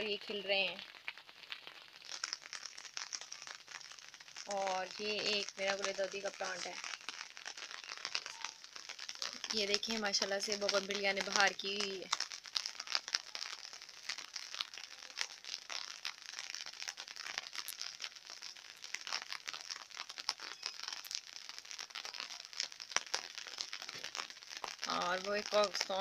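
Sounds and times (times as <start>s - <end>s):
light rain falling: 0.0s - 26.0s.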